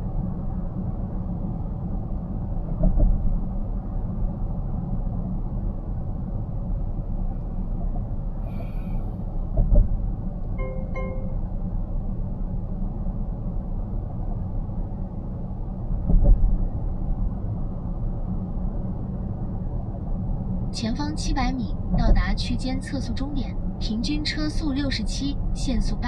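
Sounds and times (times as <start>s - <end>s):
car road and tyre noise: 0.0s - 25.7s
short electronic tone: 10.6s - 11.5s.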